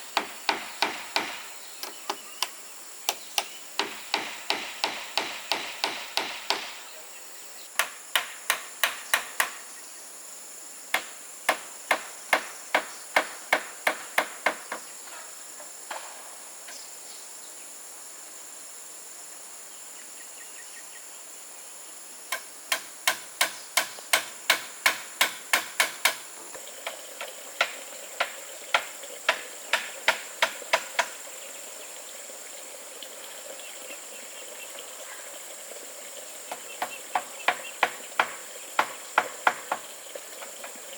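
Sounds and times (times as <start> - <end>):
high insect drone: 0.0 - 40.9
hammer blows on wood: 0.2 - 2.5, 3.1 - 6.8, 22.3 - 26.2.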